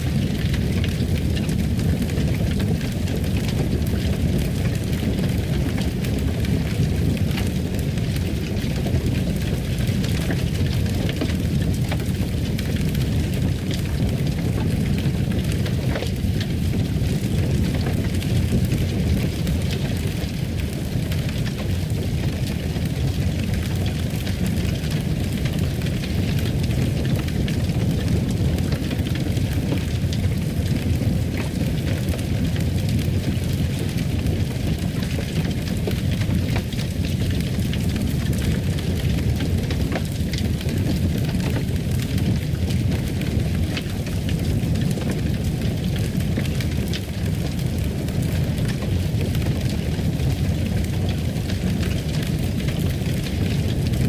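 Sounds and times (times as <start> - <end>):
fireplace fire crackling: 0.0 - 54.0.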